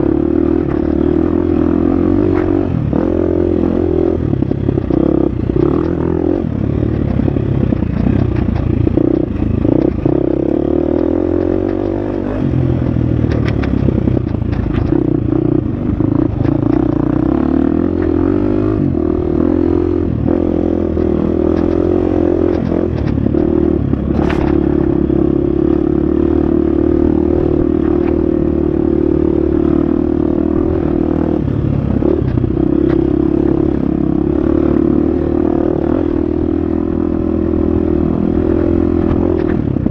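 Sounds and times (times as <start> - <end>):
dirt bike engine running hard: 0.0 - 39.9
knocks and clicks: 4.4 - 15.4, 20.3 - 25.0.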